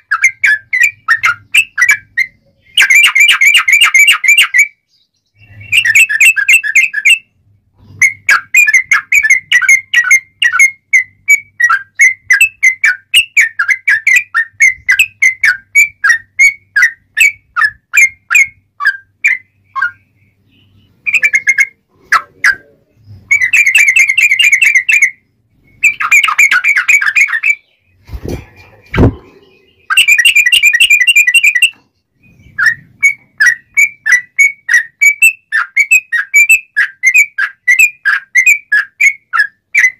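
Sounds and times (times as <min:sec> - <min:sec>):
bird chirping song: 0:00.0 - 0:39.9
sharp knocks: 0:28.2 - 0:29.4.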